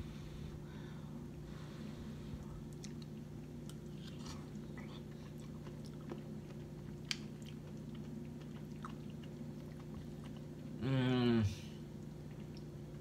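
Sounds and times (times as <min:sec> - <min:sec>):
steady low hum: 0:00.0 - 0:13.0
person chewing food: 0:02.4 - 0:10.8, 0:11.9 - 0:13.0.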